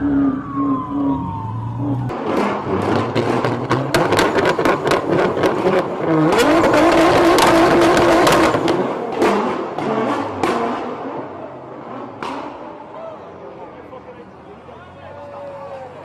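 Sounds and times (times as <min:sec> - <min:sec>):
car engine revving high: 0:01.8 - 0:12.5.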